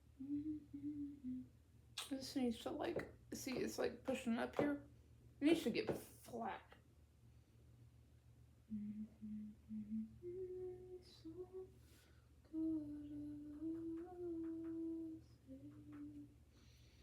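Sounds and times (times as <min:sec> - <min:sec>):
woman humming: 0:00.0 - 0:01.5, 0:08.7 - 0:11.7, 0:12.5 - 0:16.3.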